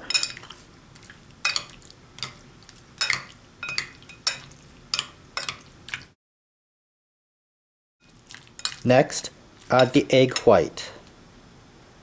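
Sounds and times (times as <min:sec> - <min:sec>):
utensil clinking against dish: 0:00.0 - 0:00.6, 0:01.4 - 0:02.4, 0:03.0 - 0:05.6
utensil stirring raw chicken: 0:00.0 - 0:06.1.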